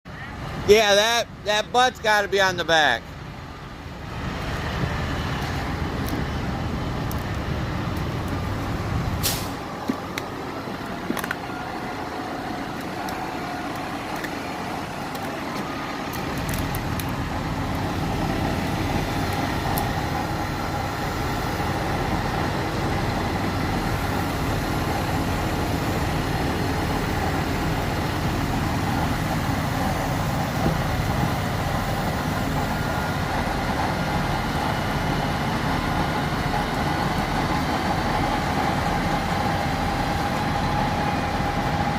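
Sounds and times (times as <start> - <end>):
heavy engine rumbling: 0.1 - 41.9.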